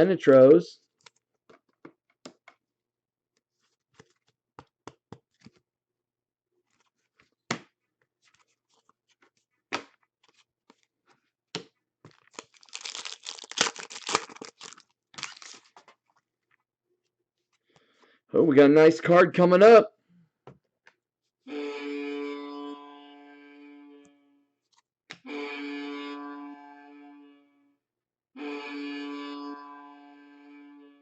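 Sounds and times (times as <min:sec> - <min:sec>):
card pack wrapper tearing: 0:12.1 - 0:15.8.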